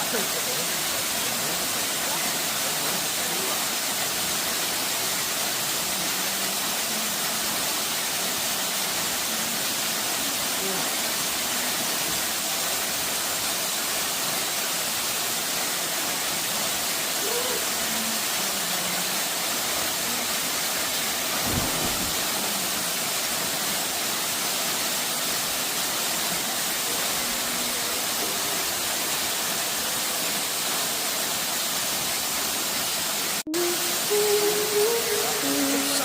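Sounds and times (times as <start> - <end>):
waterfall roaring: 0.0 - 36.0
music: 33.5 - 36.0.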